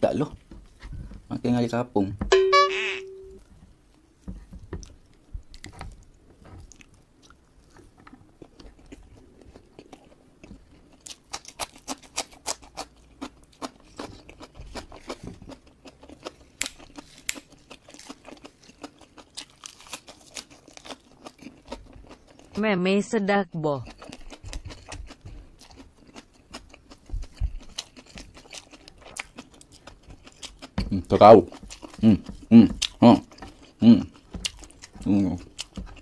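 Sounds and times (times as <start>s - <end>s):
closed-mouth chewing: 4.8s - 22.6s, 23.8s - 36.0s
crunchy bites: 10.9s - 22.5s.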